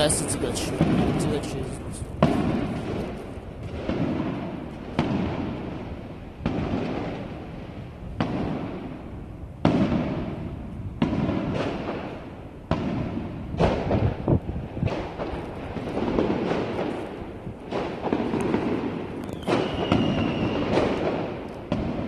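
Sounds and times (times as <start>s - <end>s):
fireworks shells bursting: 14.8s - 22.0s.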